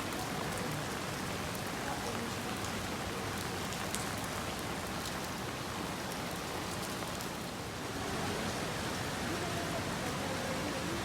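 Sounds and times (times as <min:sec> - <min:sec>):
heavy rain on hard surfaces: 0:00.0 - 0:11.0.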